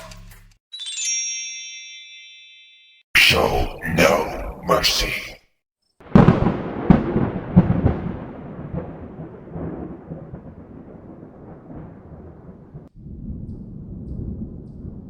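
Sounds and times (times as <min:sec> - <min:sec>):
loud boom with low rumbling: 0:06.1 - 0:15.0.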